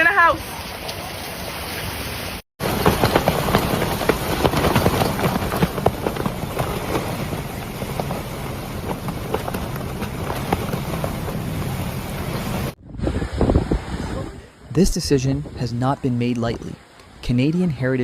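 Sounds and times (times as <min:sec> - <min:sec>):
rain: 0:00.0 - 0:12.8
wind: 0:00.0 - 0:18.0
raindrops tapping on microphone: 0:02.6 - 0:12.8.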